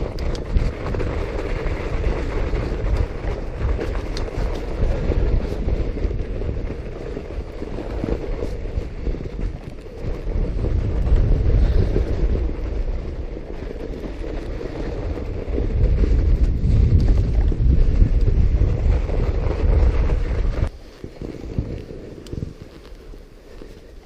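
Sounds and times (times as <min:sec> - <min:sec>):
bike rumbling over snow: 0:00.0 - 0:24.0
wind buffeting microphone: 0:00.0 - 0:24.0.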